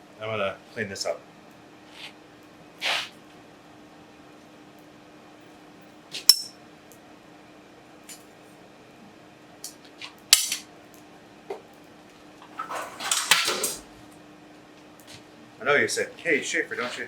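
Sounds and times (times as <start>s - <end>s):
metal tools clanking: 6.3s - 6.6s.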